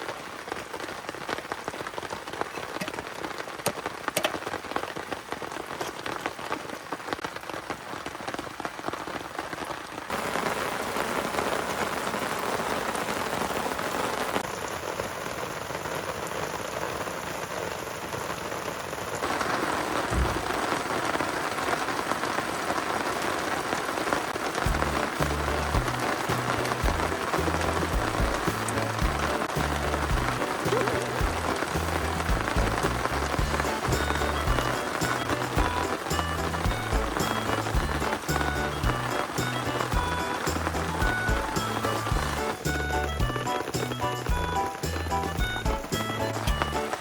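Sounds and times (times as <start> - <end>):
heavy rain falling: 0.0 - 47.0
low background music beat: 24.7 - 47.0.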